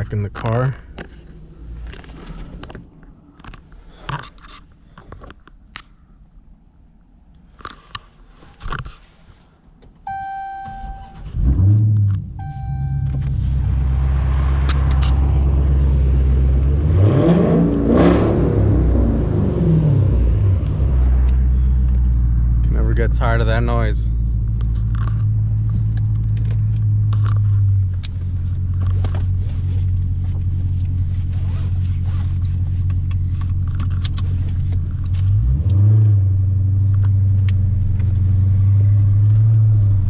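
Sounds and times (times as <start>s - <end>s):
car engine starting and idling: 9.3s - 40.0s
warning chimes: 10.1s - 11.3s, 12.4s - 13.3s
engine revving: 11.4s - 21.8s, 35.2s - 36.4s.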